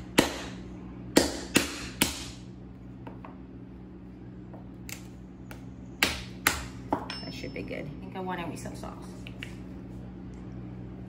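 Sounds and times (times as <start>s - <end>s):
mallet knocking crab shell: 1.2s - 2.3s.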